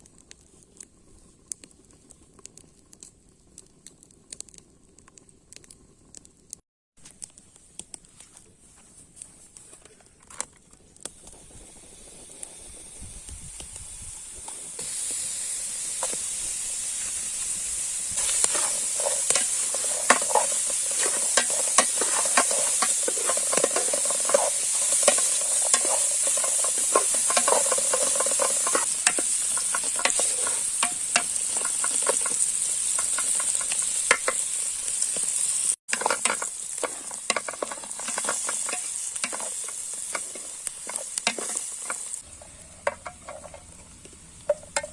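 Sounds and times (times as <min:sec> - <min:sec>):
food sizzling in hot oil: 0:11.1 - 0:44.9
utensil clicking and scraping: 0:18.2 - 0:34.5, 0:35.9 - 0:42.2.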